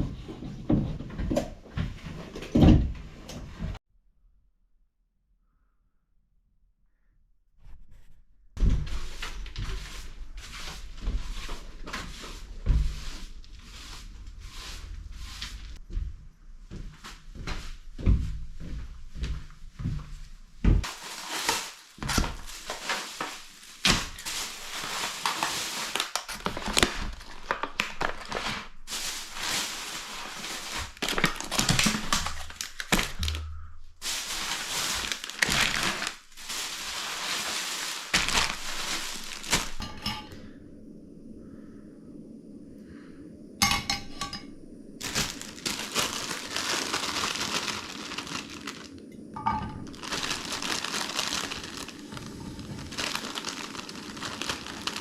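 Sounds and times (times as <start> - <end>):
crumpling and rustling: 8.6 - 15.8, 20.8 - 40.3, 45.0 - 55.0.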